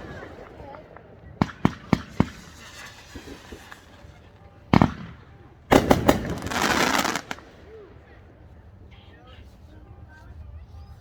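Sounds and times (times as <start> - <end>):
fireworks bangs: 0.0 - 8.1.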